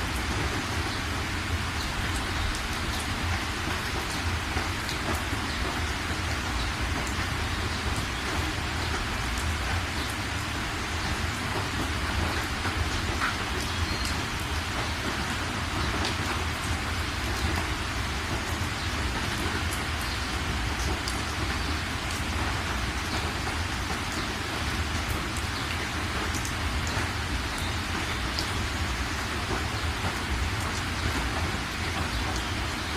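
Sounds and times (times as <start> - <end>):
rain drop ticks: 0.0 - 32.9
steady rain falling: 0.0 - 32.9.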